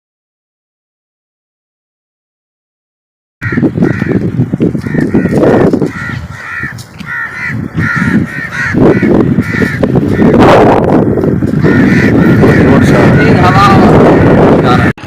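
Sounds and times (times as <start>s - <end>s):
harsh bird calls: 3.4s - 14.9s
low rumbling noise: 7.2s - 15.0s.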